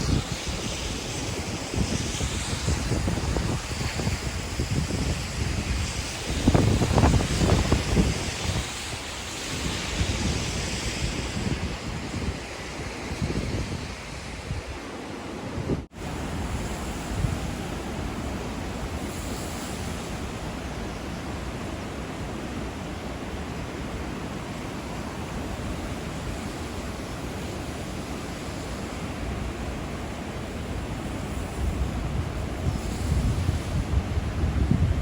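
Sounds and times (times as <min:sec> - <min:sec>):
river roaring over a weir: 0:00.0 - 0:35.0
wind on microphone: 0:00.0 - 0:35.0.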